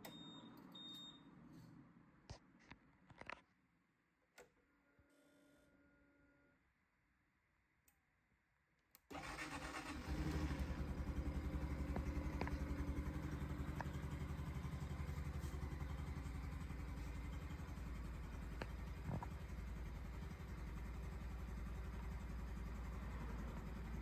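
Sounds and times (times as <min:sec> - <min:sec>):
motorcycle engine starting and idling: 0:09.1 - 0:24.0.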